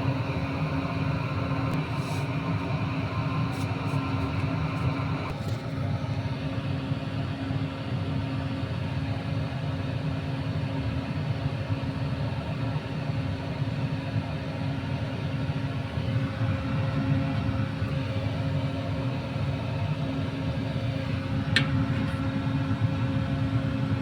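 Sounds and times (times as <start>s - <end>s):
motor humming and rumbling: 0.0s - 5.6s, 15.8s - 24.0s.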